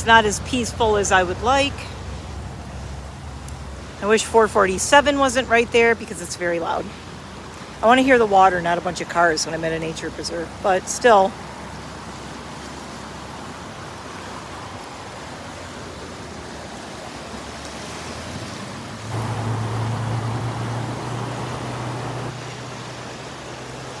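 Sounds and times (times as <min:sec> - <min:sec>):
creek rushing over rocks: 0:00.0 - 0:24.0.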